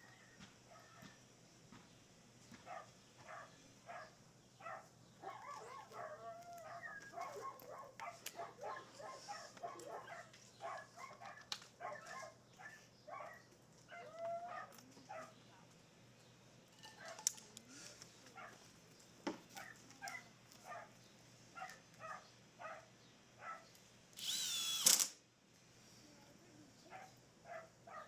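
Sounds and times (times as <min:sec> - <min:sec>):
sharp clicks: 0:24.2 - 0:25.2.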